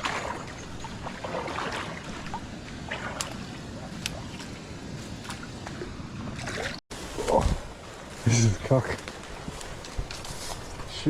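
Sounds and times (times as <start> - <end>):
footsteps wading through water: 0.0 - 6.8
water sloshing and splashing: 0.0 - 7.8.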